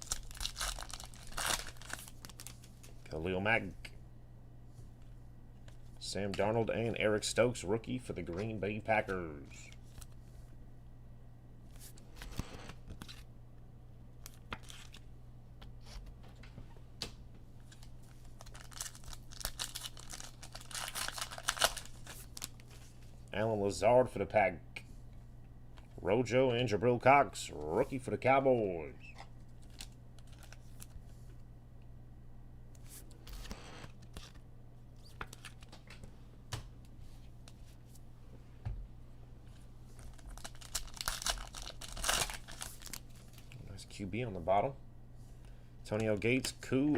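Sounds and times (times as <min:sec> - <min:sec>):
card pack crinkling: 0:00.0 - 0:03.0, 0:14.2 - 0:15.0, 0:17.6 - 0:23.0, 0:29.5 - 0:31.0, 0:35.0 - 0:35.8, 0:39.9 - 0:43.6
low electrical hum: 0:00.0 - 0:46.9.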